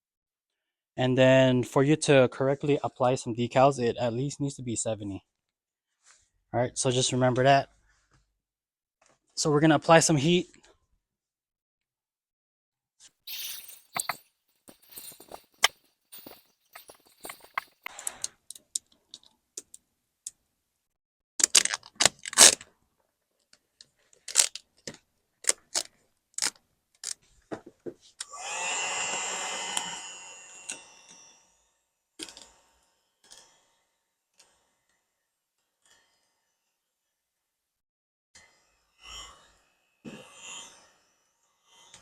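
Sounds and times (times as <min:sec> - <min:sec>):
hot-air blower running: 0:28.3 - 0:31.4.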